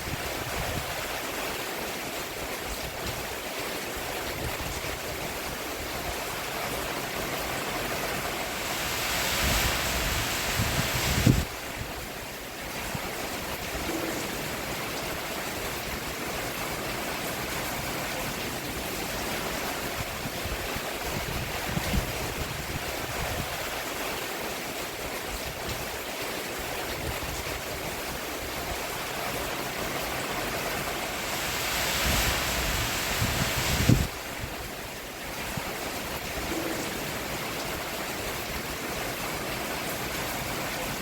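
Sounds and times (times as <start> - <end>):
rain on a roof: 0.0 - 41.0.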